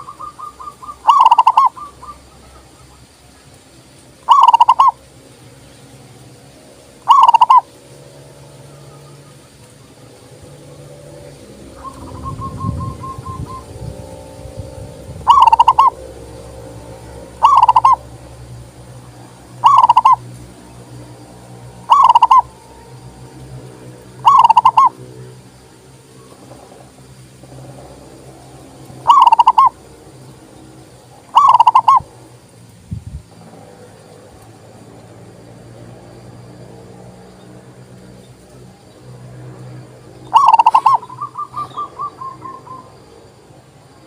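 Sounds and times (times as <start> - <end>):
dove cooing: 0.0 - 3.0, 4.2 - 5.0, 7.0 - 7.7, 11.0 - 18.5, 19.6 - 20.3, 21.7 - 22.7, 24.2 - 25.3, 28.9 - 29.8, 31.2 - 32.2, 40.2 - 43.0
faint bird trill: 0.0 - 3.0, 4.2 - 5.0, 7.0 - 7.7, 11.8 - 14.0, 15.2 - 16.0, 17.4 - 18.0, 19.6 - 20.2, 21.8 - 22.6, 24.2 - 25.0, 29.0 - 29.8, 31.3 - 32.1, 40.2 - 43.2.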